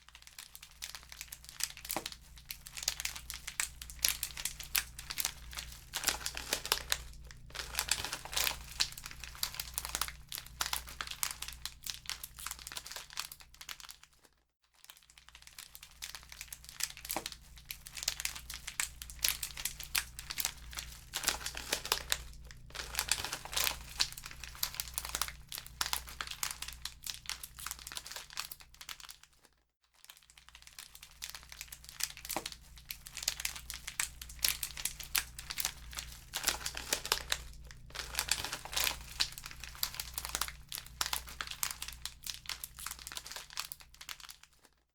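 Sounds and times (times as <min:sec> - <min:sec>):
wood fire crackling: 0:01.2 - 0:12.1, 0:16.4 - 0:27.3, 0:31.6 - 0:43.2
steady low hum: 0:02.2 - 0:12.4, 0:17.4 - 0:27.7, 0:32.7 - 0:43.1.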